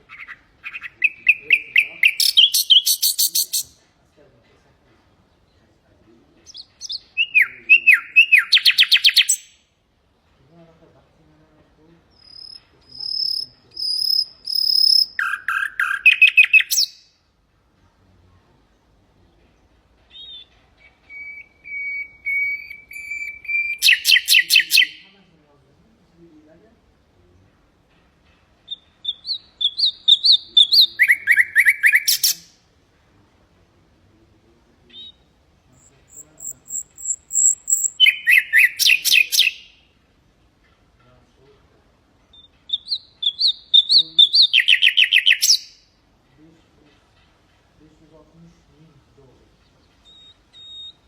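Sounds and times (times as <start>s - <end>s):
nightingale singing: 0.0s - 3.9s, 6.4s - 9.7s, 12.0s - 17.3s, 19.2s - 25.2s, 28.6s - 32.7s, 34.8s - 40.0s, 40.7s - 46.0s, 48.4s - 51.0s.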